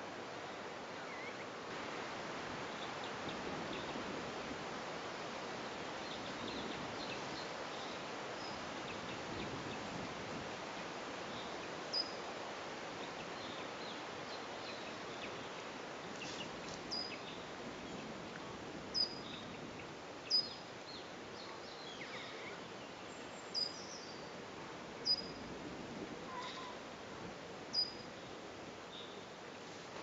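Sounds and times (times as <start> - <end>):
steady background hiss: 0.0 - 30.0
faint bird calls: 21.8 - 22.7, 26.3 - 26.8.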